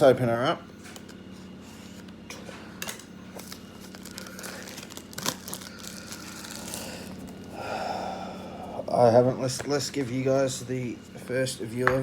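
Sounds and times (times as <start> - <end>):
packaging crinkling and tearing: 3.4 - 7.5.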